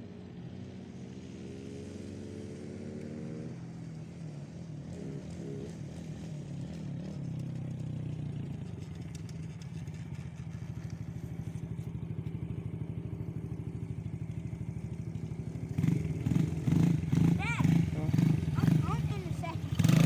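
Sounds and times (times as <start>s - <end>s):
small engine pulsing: 13.0s - 20.0s.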